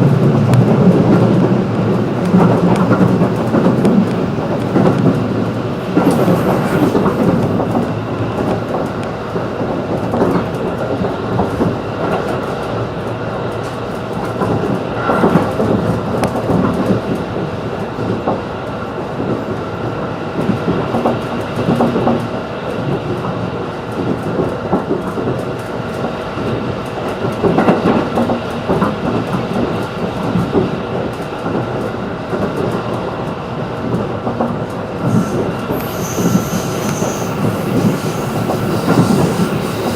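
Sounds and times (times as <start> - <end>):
clacks over rail joints: 0.0 - 17.4
train wheels rumbling on rail: 0.0 - 39.9.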